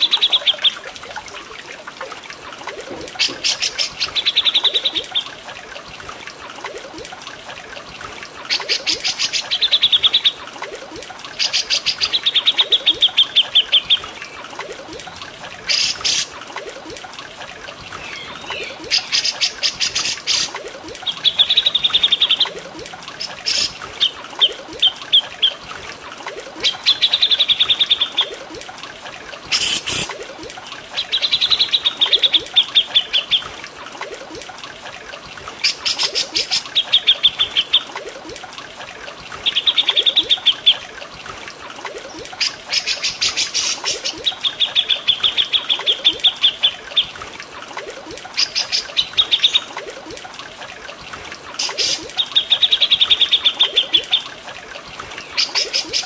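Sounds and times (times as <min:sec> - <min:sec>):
trickling water: 0:00.0 - 0:56.0
songbirds singing trilled phrases: 0:18.0 - 0:22.4.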